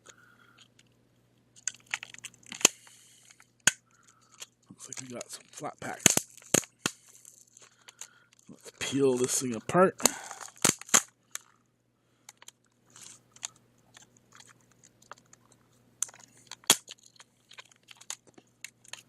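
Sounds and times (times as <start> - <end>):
sharp plastic snaps: 1.6 - 8.4, 10.0 - 11.5
plastic clicking and crackling: 1.6 - 9.4, 10.0 - 11.6, 12.3 - 19.0.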